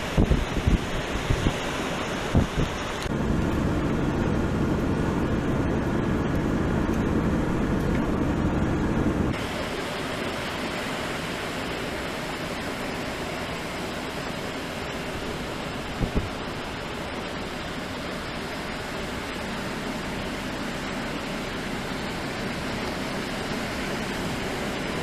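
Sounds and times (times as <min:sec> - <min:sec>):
wind buffeting microphone: 0:00.0 - 0:10.4, 0:14.8 - 0:18.8
vehicle engine running: 0:00.0 - 0:25.0.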